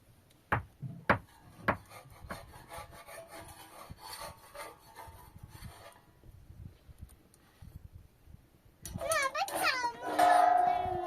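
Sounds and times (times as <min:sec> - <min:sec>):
scraping strokes: 0:01.3 - 0:06.1.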